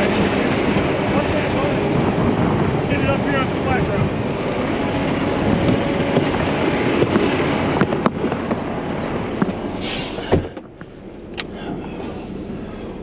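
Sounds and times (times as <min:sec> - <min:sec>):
diesel engine running: 0:00.0 - 0:13.0
heavy thump: 0:09.4 - 0:12.2
short hiss: 0:09.8 - 0:10.3.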